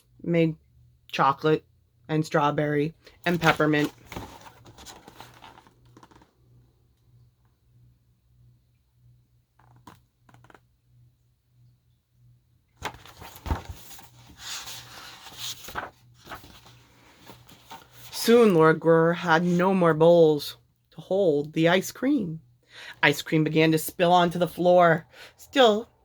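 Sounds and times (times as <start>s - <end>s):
book pages rustling: 3.3s - 6.4s, 9.6s - 10.6s, 12.8s - 19.6s.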